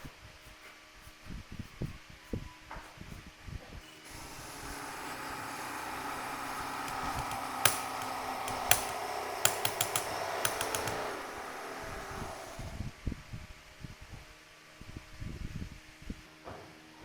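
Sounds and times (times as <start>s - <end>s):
sharp clicks: 4.1s - 12.8s
power tool running: 4.1s - 12.9s.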